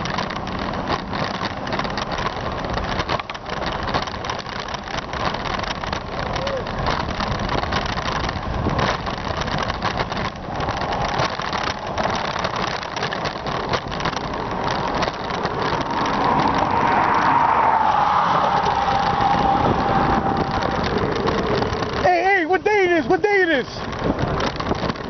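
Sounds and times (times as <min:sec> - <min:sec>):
road noise: 0:00.0 - 0:25.0
wind buffeting microphone: 0:00.0 - 0:25.0
steady whine: 0:14.3 - 0:22.1.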